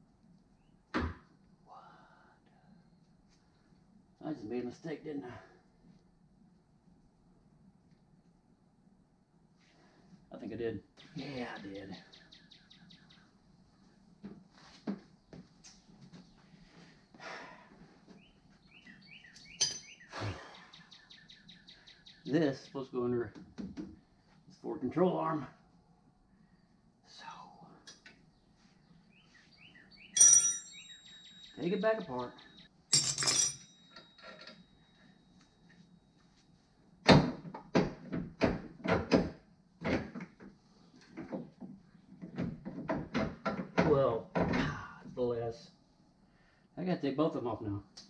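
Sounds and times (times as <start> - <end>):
small bird chirping: 11.0 - 13.4, 18.2 - 22.4, 28.2 - 32.7
sharp ringing clink: 19.4 - 20.0, 30.2 - 35.2
metal parts clunking: 32.9 - 34.6.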